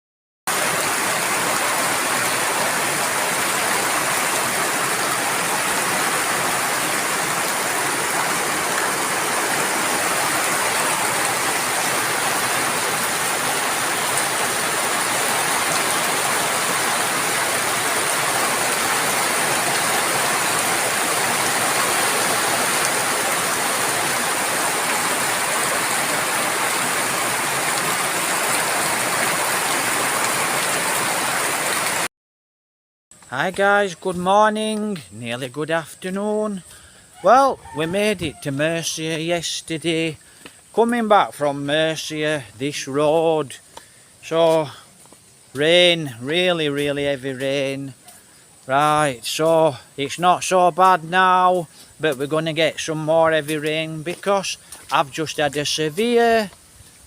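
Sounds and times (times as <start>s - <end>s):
rain falling steadily: 0.5s - 32.1s, 33.2s - 57.0s.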